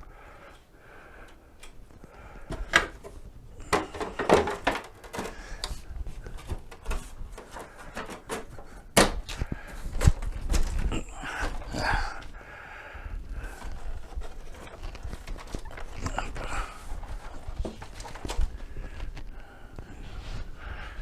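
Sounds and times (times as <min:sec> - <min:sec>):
rustling: 0:00.2 - 0:21.0
tools knocking and clicking: 0:02.5 - 0:09.4.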